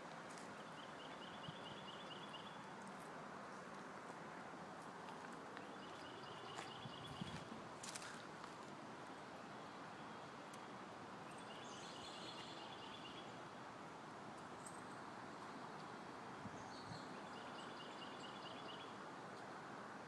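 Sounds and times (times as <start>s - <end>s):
songbird singing: 0.3s - 3.0s, 5.5s - 8.2s, 9.4s - 13.6s, 14.4s - 19.5s.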